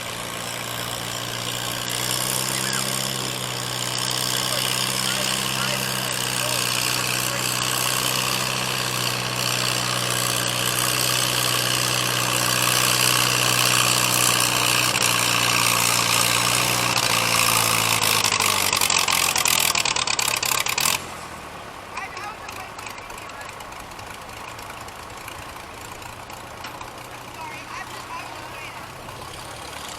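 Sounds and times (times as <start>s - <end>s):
tractor engine running hard: 0.0s - 29.9s.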